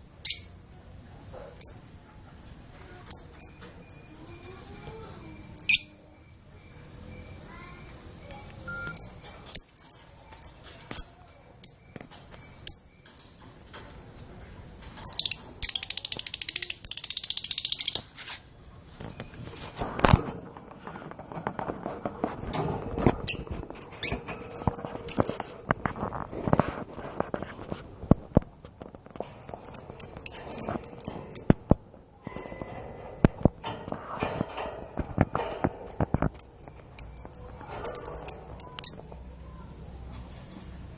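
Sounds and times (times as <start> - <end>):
canaries chirping: 14.9 - 18.2, 22.3 - 25.5, 29.3 - 31.6, 35.3 - 39.2.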